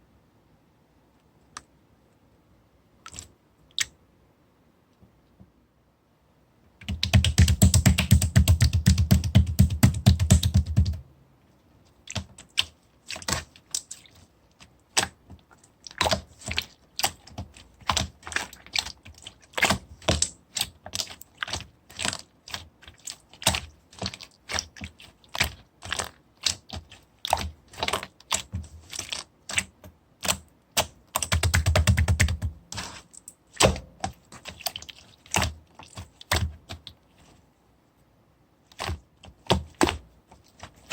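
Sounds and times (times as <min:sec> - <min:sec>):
slime squished by hand: 0:12.0 - 0:37.3.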